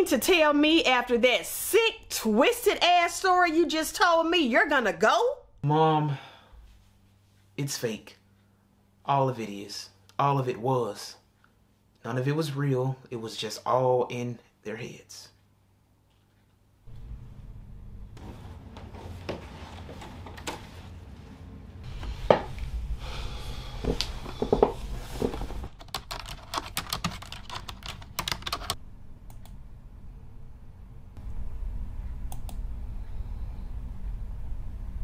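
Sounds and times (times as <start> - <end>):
low steady hum: 0.0 - 35.0
typing on computer keyboard: 25.8 - 28.8.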